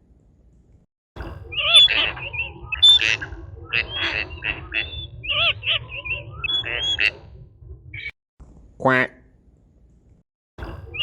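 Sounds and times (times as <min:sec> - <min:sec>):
steady low rumble: 0:01.2 - 0:08.1
birds squawking and chirping: 0:01.4 - 0:08.1.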